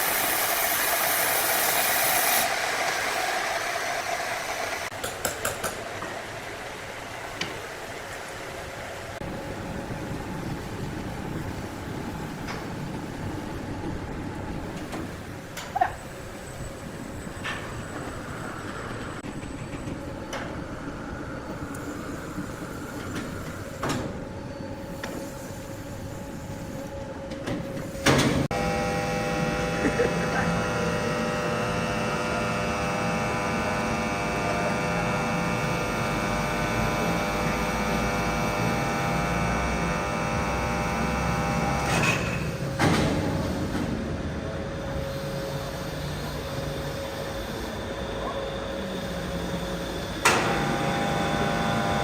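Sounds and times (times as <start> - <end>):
motorised saw whining: 28.5 - 42.2, 49.9 - 52.0.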